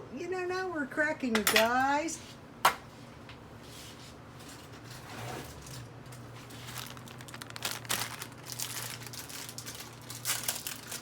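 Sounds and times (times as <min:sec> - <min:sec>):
plastic packaging crinkling: 0:05.6 - 0:11.0.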